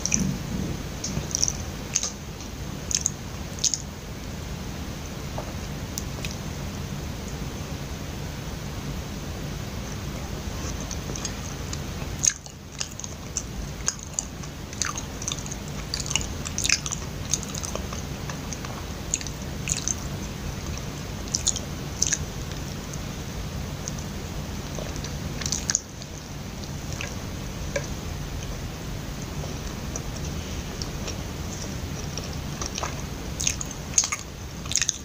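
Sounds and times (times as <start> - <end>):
mouth clicks and smacks: 0.0 - 3.9, 24.7 - 28.0, 29.6 - 35.0
steady low hum: 0.0 - 35.0.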